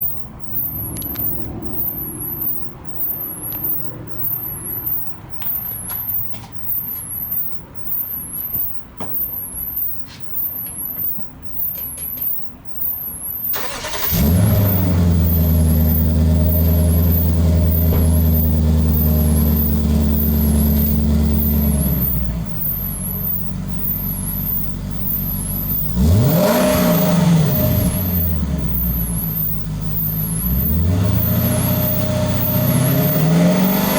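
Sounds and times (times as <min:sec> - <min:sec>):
car engine idling and revving: 0:00.0 - 0:11.6, 0:13.5 - 0:33.9
faint high squeak: 0:00.0 - 0:26.0
uneven rumbling and clicks: 0:00.0 - 0:33.9.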